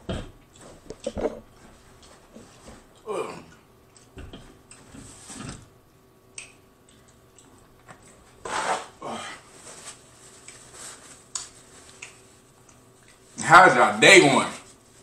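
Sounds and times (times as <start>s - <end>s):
chewing clicks and lip smacks: 6.3s - 8.2s, 11.3s - 13.2s
paper napkin rustling: 8.4s - 12.5s.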